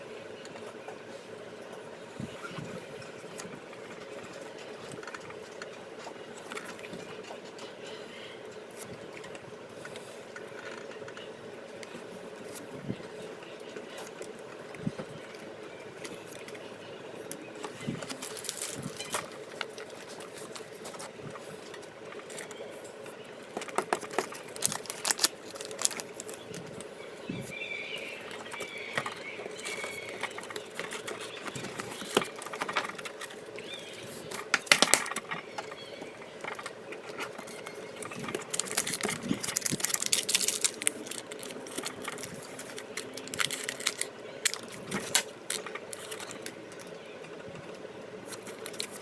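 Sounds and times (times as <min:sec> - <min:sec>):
faint steady hum: 0:00.0 - 0:49.0
cards and packaging clicking: 0:17.3 - 0:21.1, 0:23.5 - 0:26.7, 0:28.3 - 0:47.0, 0:48.2 - 0:49.0
packaging rustling: 0:17.6 - 0:21.1, 0:23.5 - 0:26.8, 0:28.4 - 0:35.8, 0:36.4 - 0:47.0, 0:48.2 - 0:49.0.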